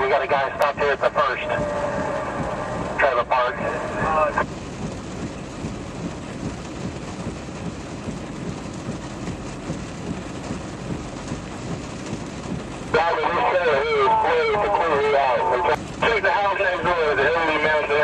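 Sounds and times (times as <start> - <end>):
heavy rain: 0.0 - 18.0.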